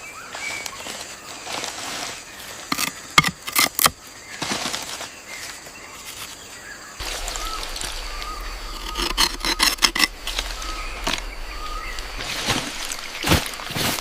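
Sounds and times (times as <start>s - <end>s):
faint outdoor hiss: 4.9s - 14.0s.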